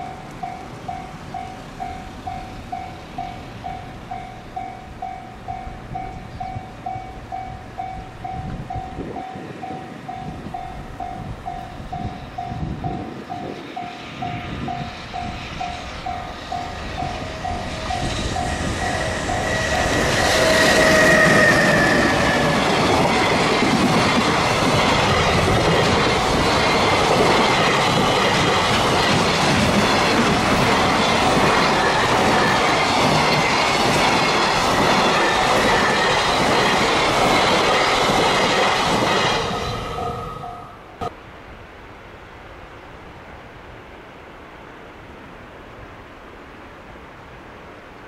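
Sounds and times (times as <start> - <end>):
level-crossing bell dinging: 0.0 - 21.4, 39.6 - 41.1
electric locomotive whine: 0.0 - 41.2.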